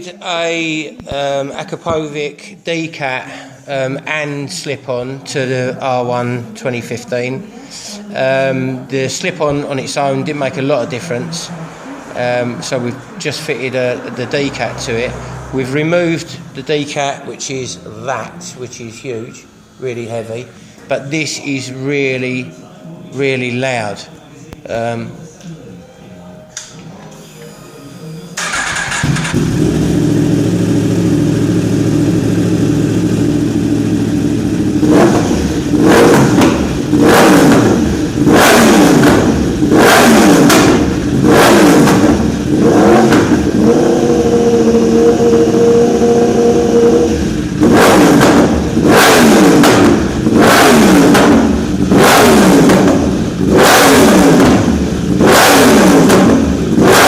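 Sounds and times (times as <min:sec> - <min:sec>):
motorcycle engine revving: 0:28.4 - 0:57.0.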